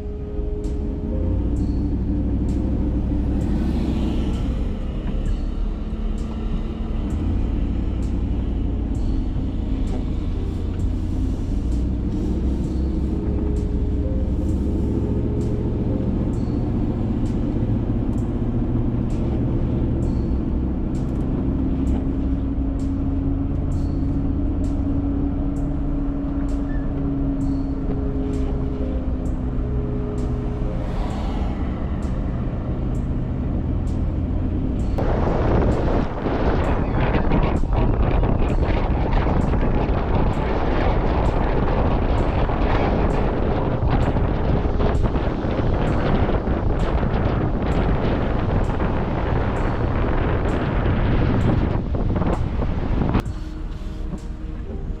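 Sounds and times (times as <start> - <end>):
vehicle driving rumble: 0.0 - 55.0
wind noise rushing: 35.0 - 55.0.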